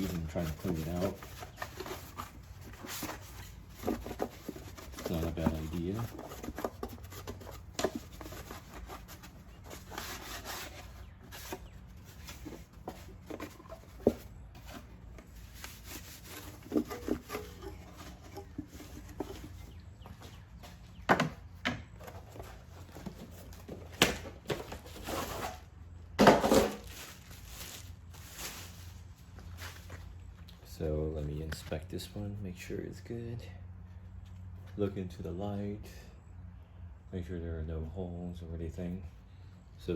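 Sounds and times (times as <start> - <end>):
hands rubbing and scraping plastic: 0.0 - 20.4.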